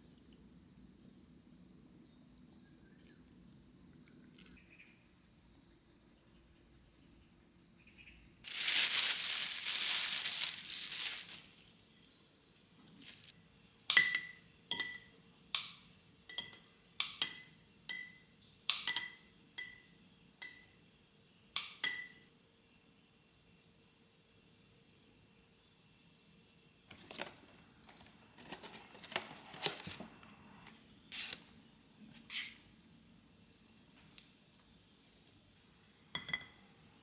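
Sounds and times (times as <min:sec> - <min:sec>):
rustling crinkling: 0:08.4 - 0:11.8, 0:13.0 - 0:13.3.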